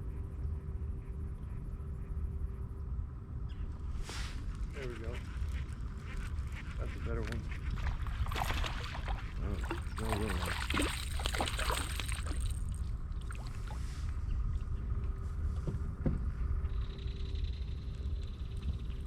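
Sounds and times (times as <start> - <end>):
faint steady hum: 0.0 - 19.0
steady low rumble: 0.0 - 19.0.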